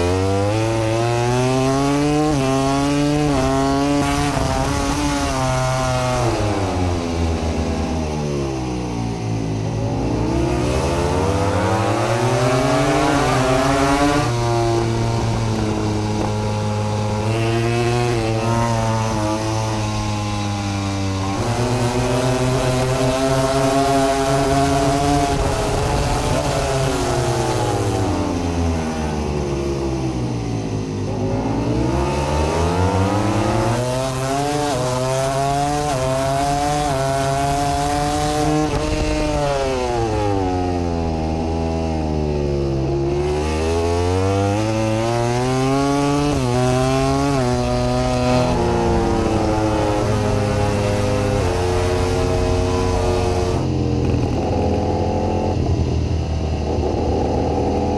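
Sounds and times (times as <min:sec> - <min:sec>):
racing motorcycle engine shifting gears: 0:00.0 - 0:57.9.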